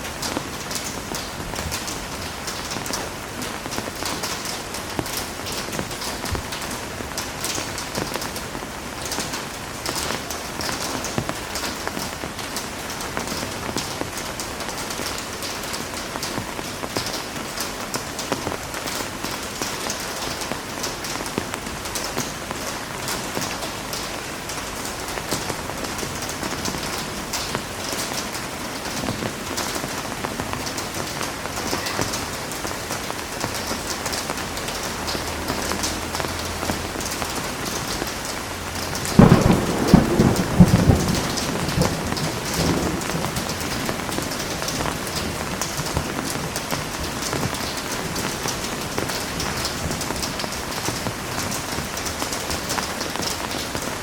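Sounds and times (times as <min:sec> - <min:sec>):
heavy rain: 0:00.0 - 0:54.0
thunder clap rumbling: 0:34.7 - 0:52.0.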